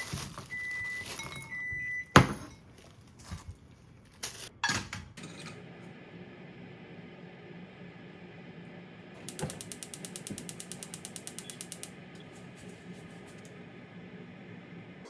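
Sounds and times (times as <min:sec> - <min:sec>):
low hum: 0:05.5 - 0:15.0
mechanical ratcheting clicks: 0:09.2 - 0:11.9.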